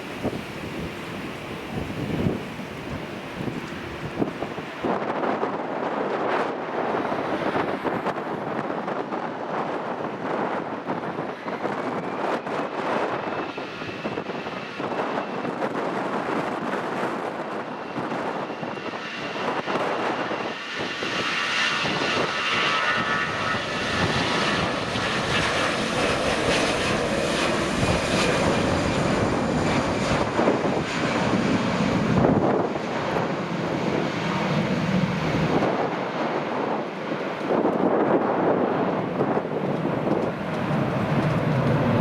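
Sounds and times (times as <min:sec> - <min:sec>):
airliner engines running: 0:00.0 - 0:42.0
wind buffeting microphone: 0:00.0 - 0:42.0.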